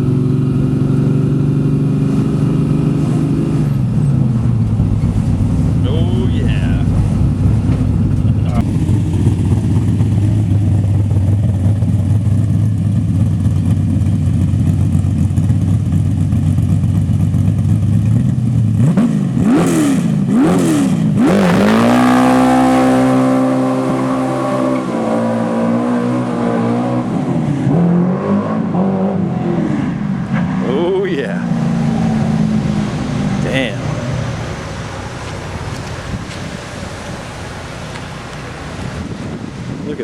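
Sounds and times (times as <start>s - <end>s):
car engine accelerating: 0.0s - 40.0s
tires chirping: 0.0s - 40.0s.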